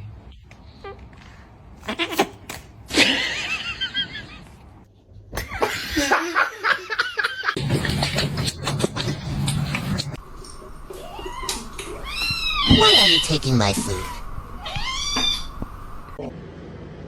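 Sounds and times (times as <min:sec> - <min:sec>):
person laughing: 0:05.4 - 0:07.6.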